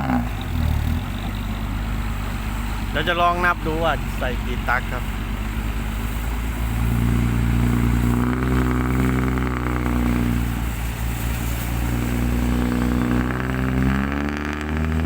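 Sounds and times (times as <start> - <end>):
excavator diesel engine under load: 0.0 - 15.0.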